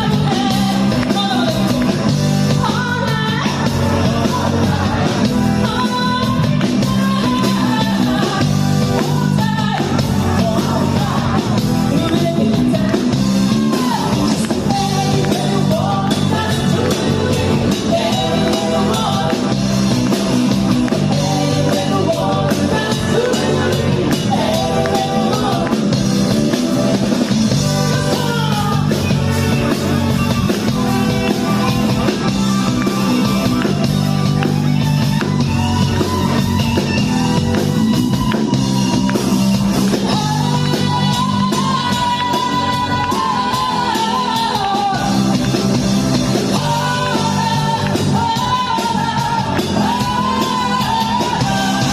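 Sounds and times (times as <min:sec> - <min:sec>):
person singing: 0:00.0 - 0:19.9, 0:20.9 - 0:26.1, 0:39.9 - 0:45.5
drum kit: 0:00.0 - 0:51.9
electric guitar: 0:00.0 - 0:51.9.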